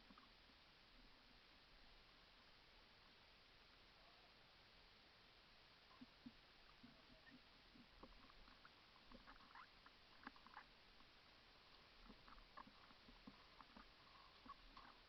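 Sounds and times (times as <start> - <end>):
faint small clicks and ticks: 0.0 - 1.2, 5.8 - 15.0.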